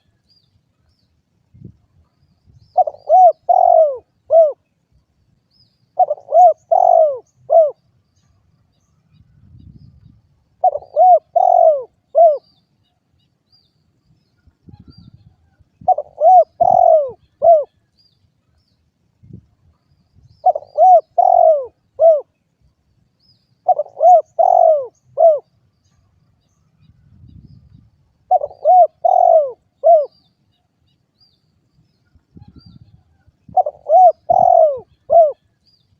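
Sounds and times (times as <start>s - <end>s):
dove cooing: 2.7s - 4.6s, 6.0s - 7.8s, 10.6s - 12.5s, 15.8s - 17.8s, 20.4s - 22.4s, 23.6s - 25.5s, 28.3s - 30.2s, 33.5s - 35.5s.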